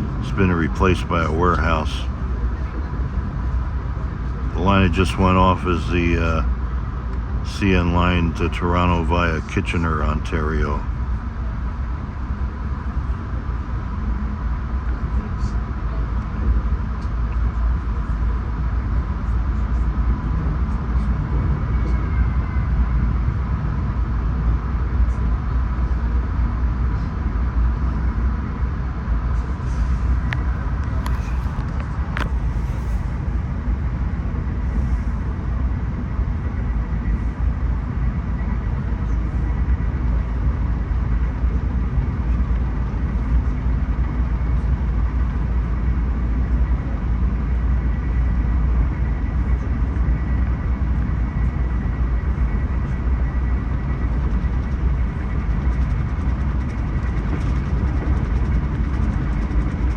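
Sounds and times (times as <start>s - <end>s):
faint steady whine: 0.0s - 59.9s
train wheels rumbling on rail: 50.8s - 59.9s.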